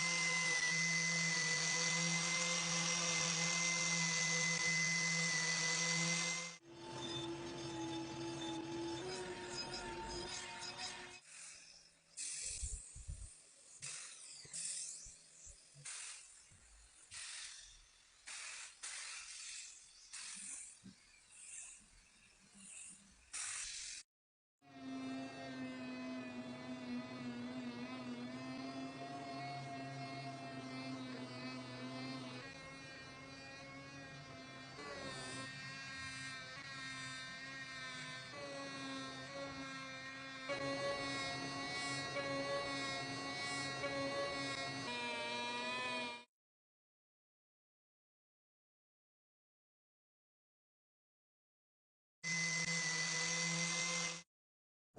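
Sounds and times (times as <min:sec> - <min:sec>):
small electric motor whining: 0:00.0 - 0:23.8, 0:24.7 - 0:46.3, 0:52.3 - 0:54.3
hissing spray bursts: 0:12.2 - 0:14.8, 0:15.8 - 0:16.4, 0:17.1 - 0:20.8, 0:23.3 - 0:24.0.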